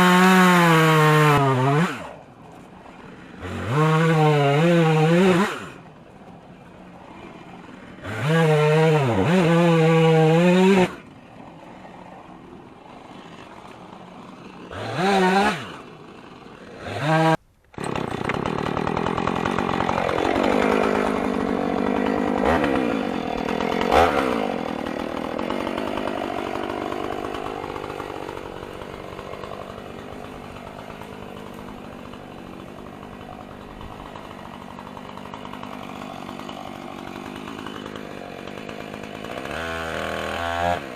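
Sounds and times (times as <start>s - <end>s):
chainsaw revving and idling: 0.0s - 40.9s.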